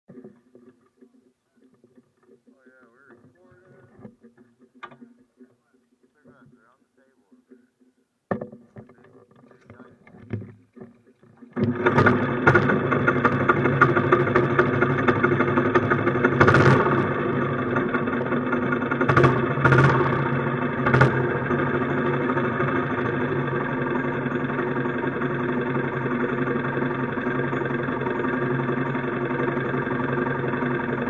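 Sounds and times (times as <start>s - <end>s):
knocks: 8.3s - 13.0s
minibike engine idling: 8.8s - 31.0s.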